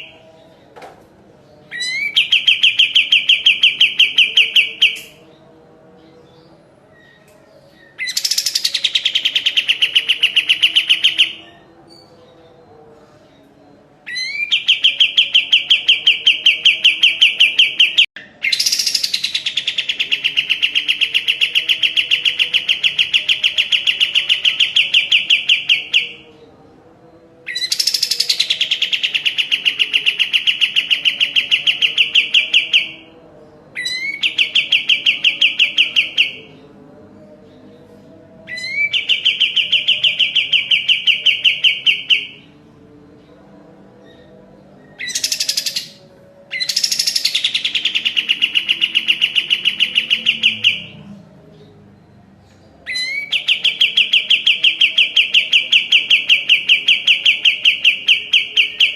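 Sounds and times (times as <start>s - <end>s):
songbird singing rapid trills: 44.9s - 51.0s.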